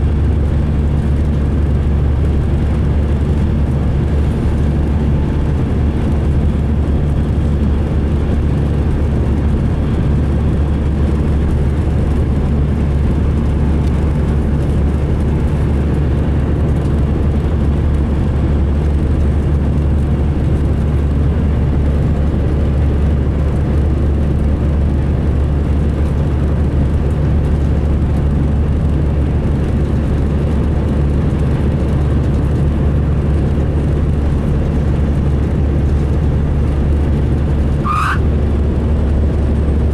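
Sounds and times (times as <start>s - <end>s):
diesel coach engine drone: 0.0s - 39.9s.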